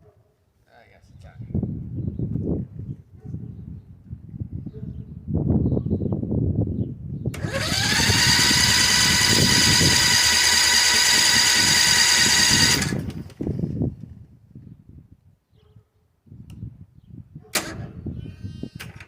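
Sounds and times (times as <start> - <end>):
electric starter whine: 7.3 - 13.4.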